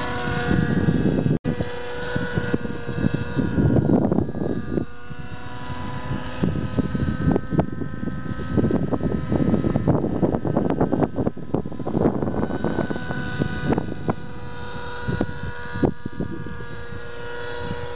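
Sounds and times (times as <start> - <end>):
model aircraft engine running: 0.0 - 17.9.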